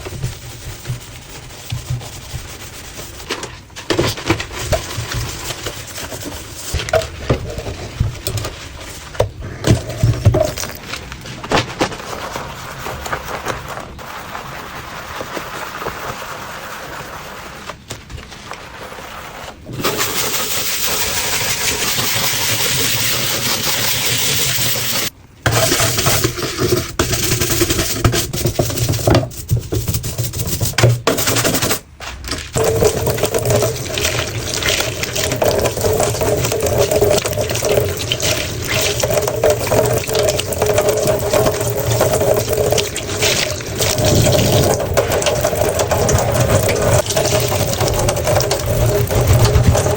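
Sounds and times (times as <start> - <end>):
water running from a tap: 32.6 - 49.9.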